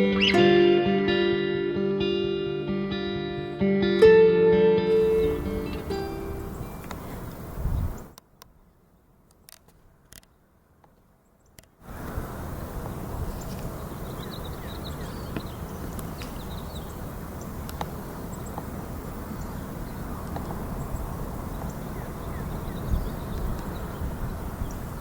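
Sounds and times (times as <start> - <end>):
high bird chirps: 0.0 - 0.5, 4.9 - 8.2, 13.3 - 18.7
low rushing noise: 4.9 - 8.2.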